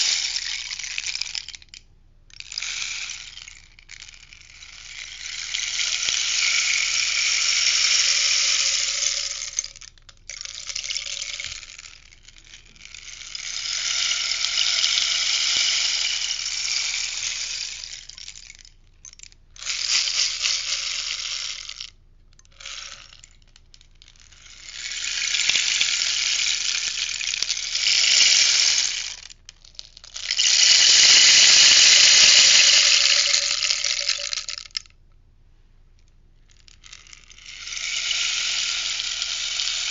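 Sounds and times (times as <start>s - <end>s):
rainstick filling pattering: 22.4s - 34.9s.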